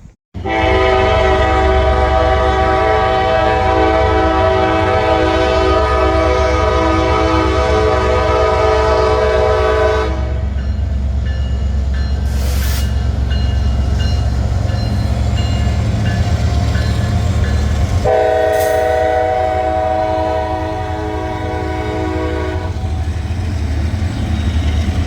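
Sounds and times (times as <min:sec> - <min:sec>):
passing train rumble: 0:00.0 - 0:25.0
locomotive air horn blast: 0:00.4 - 0:10.5, 0:18.0 - 0:23.0.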